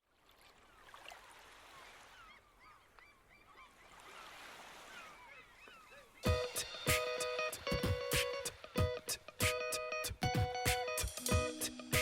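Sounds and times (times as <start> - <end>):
birds chirping: 1.8 - 12.0
steady hiss: 6.3 - 10.2.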